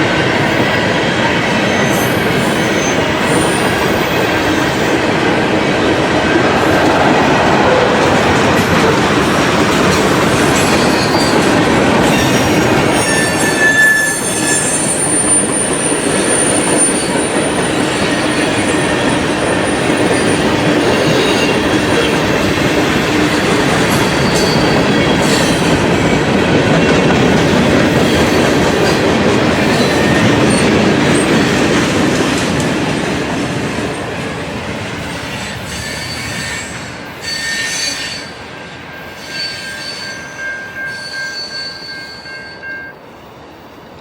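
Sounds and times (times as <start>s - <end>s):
freight train rumble: 0.0s - 37.4s
wheel squeal: 10.5s - 18.7s, 23.9s - 25.6s, 39.2s - 42.9s.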